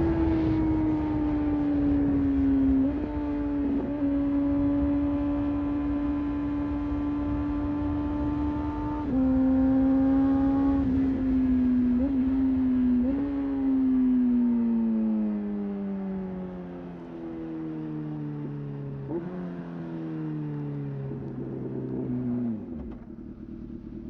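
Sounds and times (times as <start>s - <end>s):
rush of wind: 0.0s - 13.3s
motorcycle engine cruising: 0.0s - 24.0s.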